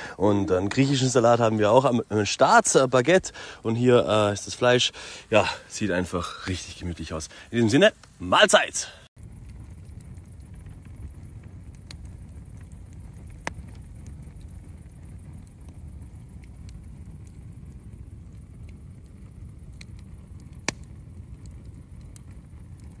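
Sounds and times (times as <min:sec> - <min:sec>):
campfire crackling: 0:00.0 - 0:23.0
low rumble: 0:09.2 - 0:23.0
sharp pops: 0:20.6 - 0:20.9.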